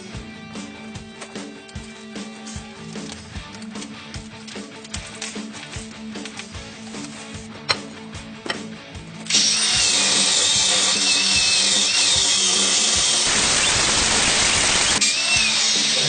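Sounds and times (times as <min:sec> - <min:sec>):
power tool running with squeal: 0:09.3 - 0:16.0.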